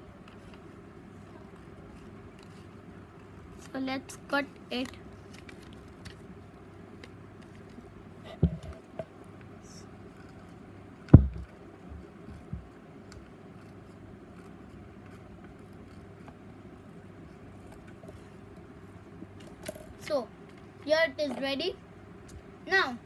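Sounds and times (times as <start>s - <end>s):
low background hum: 0.0s - 23.0s
knocks on work surface: 11.2s - 11.5s.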